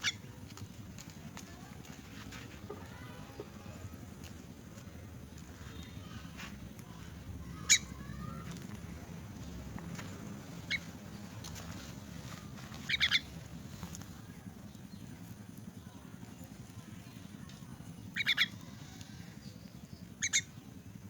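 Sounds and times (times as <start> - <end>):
low steady background hum: 0.0 - 21.0
young myna calling: 2.4 - 4.2, 5.3 - 13.4, 18.0 - 19.3, 20.2 - 20.6.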